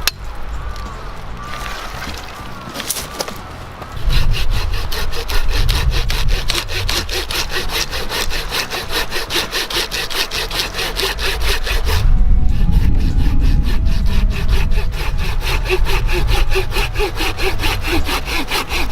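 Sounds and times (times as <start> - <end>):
hand saw cutting wood: 4.0 - 12.0, 13.2 - 18.9.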